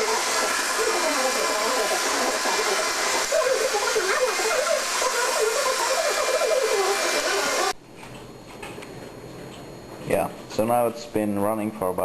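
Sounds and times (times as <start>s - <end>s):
robot vacuum whirring: 0.0s - 7.8s.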